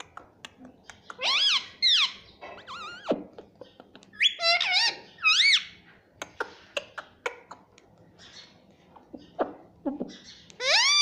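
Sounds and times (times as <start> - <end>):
parrot shrill calls: 1.2 - 3.1, 4.2 - 5.8, 10.6 - 11.0.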